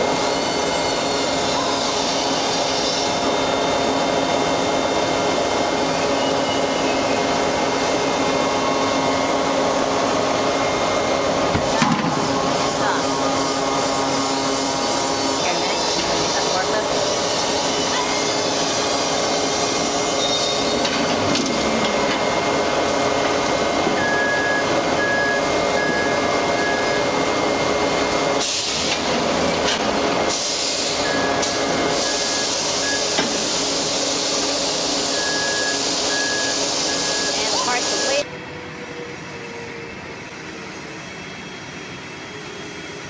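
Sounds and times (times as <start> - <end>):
beeping tone: 24.0 - 27.1, 35.1 - 38.2.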